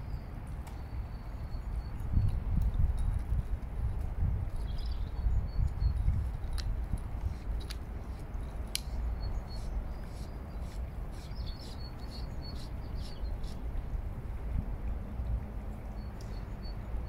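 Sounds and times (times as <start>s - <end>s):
small birds chirping: 8.8s - 13.6s.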